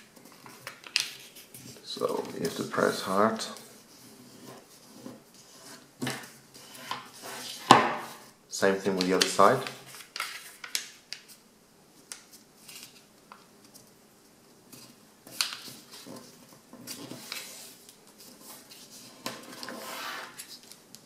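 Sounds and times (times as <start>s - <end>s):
paper rustling and crackling: 8.8s - 11.4s, 14.7s - 21.0s.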